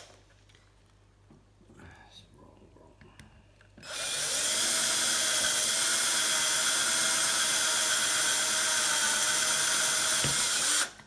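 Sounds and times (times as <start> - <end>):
electric drill whining: 3.8 - 11.0.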